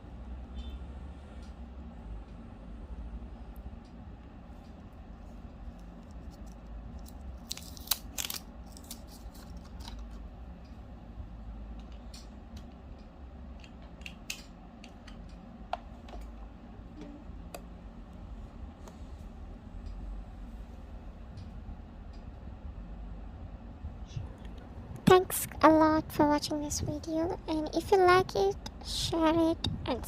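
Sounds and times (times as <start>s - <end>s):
steady low hum: 0.0s - 30.0s
hands handling small objects: 5.8s - 10.2s.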